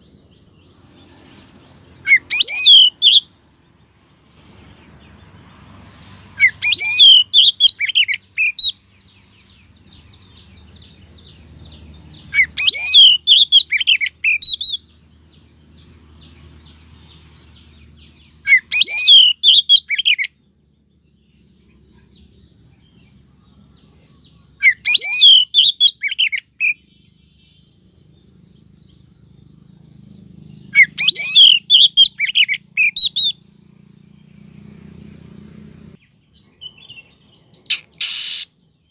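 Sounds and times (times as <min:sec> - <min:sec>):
bird calls high twisting notes: 0:02.0 - 0:03.2, 0:37.7 - 0:38.6.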